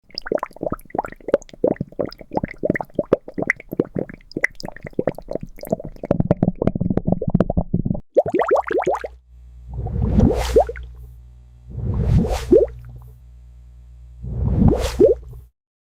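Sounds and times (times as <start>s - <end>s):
bubbles gliding upward in pitch: 0.0s - 9.1s
liquid plops and bubbling gurgles: 0.0s - 10.9s.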